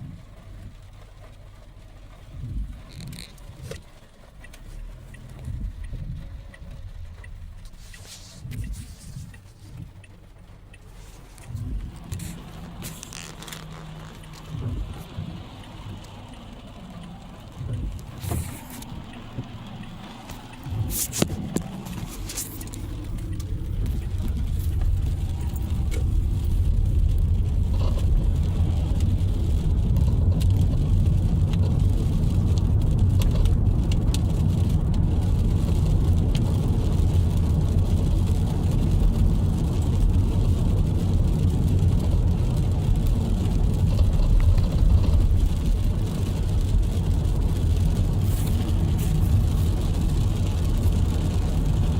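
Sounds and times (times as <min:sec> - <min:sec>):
car engine and road rumble: 0:00.0 - 0:51.9
sharp clicks and knocks: 0:02.3 - 0:35.0.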